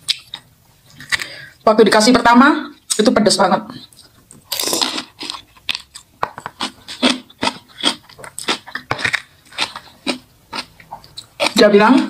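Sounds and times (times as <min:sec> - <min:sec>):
person chewing food: 0:00.0 - 0:01.5, 0:03.9 - 0:12.0.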